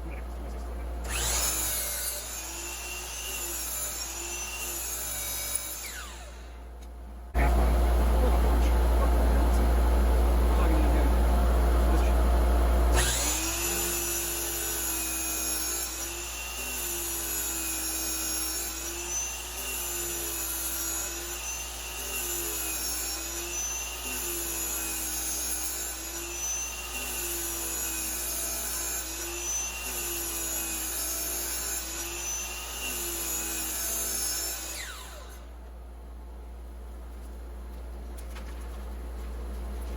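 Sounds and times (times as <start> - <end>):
motor winding down whine: 1.0 - 4.5, 5.5 - 6.6, 12.9 - 14.5
miter saw cutting: 1.0 - 6.6, 12.9 - 35.6.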